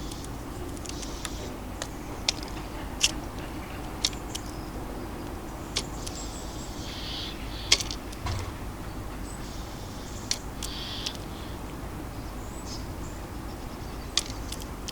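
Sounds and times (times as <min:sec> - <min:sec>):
birds pecking and tapping: 0:00.0 - 0:14.9
distant city traffic hum: 0:00.0 - 0:14.9
dull thud: 0:07.8 - 0:09.1.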